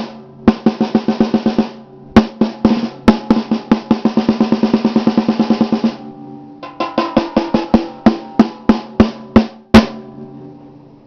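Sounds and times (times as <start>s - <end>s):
snare drum strokes and rolls: 0.0s - 6.0s, 6.6s - 10.0s
snare drum ringing: 0.0s - 10.2s.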